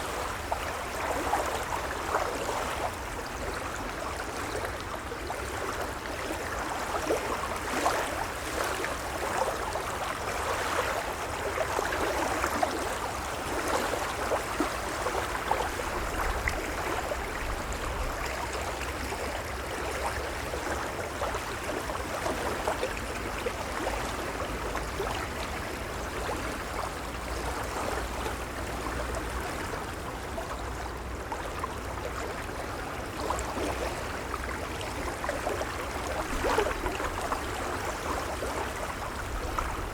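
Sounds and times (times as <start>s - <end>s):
waves lapping: 25.5s - 39.9s
small crackling splashes: 35.4s - 39.9s.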